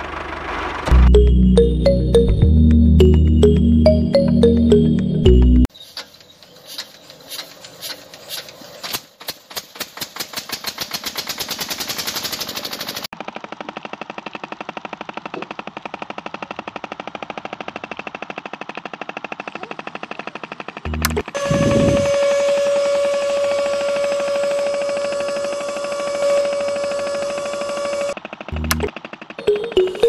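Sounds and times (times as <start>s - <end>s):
small motor mechanism rattling: 5.8s - 29.5s.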